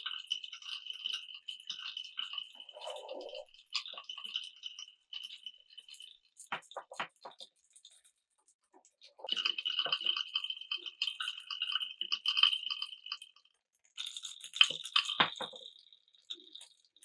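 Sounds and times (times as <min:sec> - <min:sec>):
marbles rolling on a track: 0:14.0 - 0:16.8.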